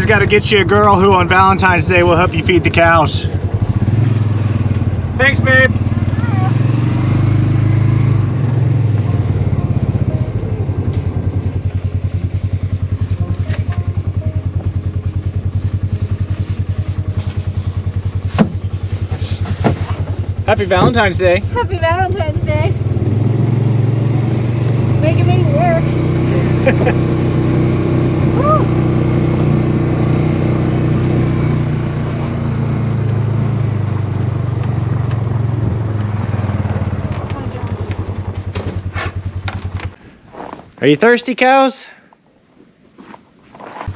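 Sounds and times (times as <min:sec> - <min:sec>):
small engine putting idle: 0:08.9 - 0:23.9, 0:31.3 - 0:40.6.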